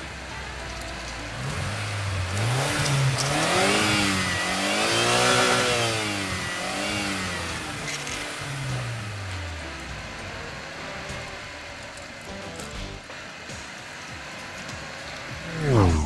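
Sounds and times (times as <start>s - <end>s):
cartoon engine revving: 15.4s - 16.0s.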